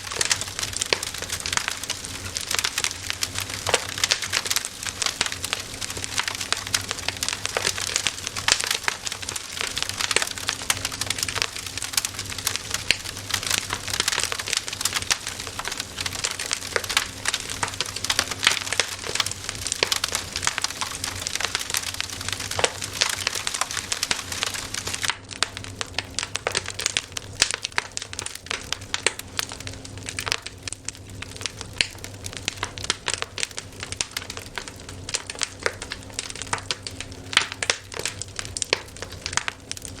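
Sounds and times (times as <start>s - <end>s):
campfire crackling: 0.0s - 40.0s.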